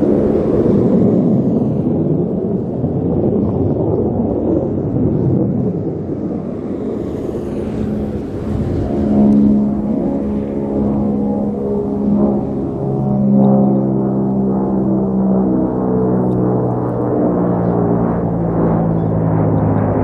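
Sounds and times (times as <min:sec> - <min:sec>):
turboprop engines rumbling in flight: 0:00.0 - 0:20.0.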